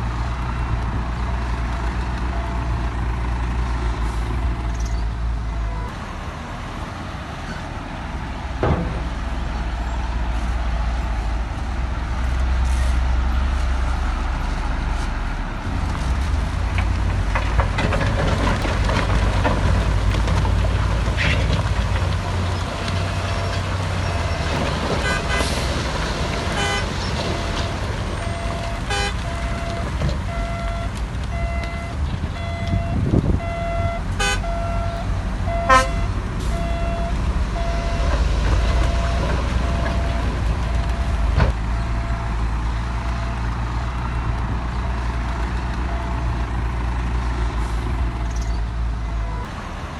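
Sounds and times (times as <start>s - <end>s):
diesel machinery droning: 0.0s - 49.9s
knocks: 8.6s - 9.4s
reversing alarm beeping: 26.6s - 43.5s.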